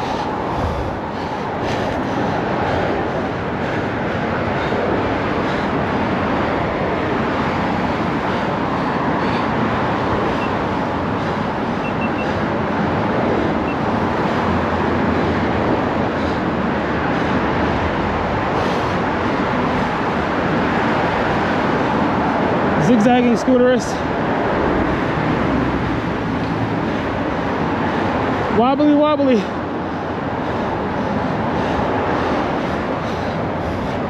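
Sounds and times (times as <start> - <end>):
wind on microphone: 0.0 - 22.8
road traffic: 0.0 - 34.0.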